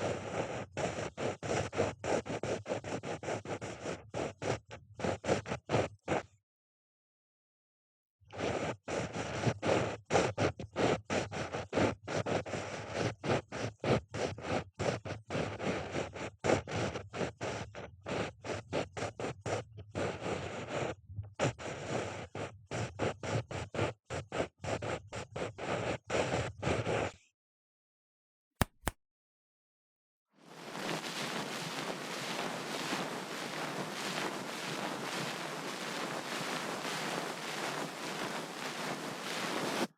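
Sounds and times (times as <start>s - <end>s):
sharp clicks: 28.6s - 28.9s
ear pick scratching: 28.6s - 29.0s.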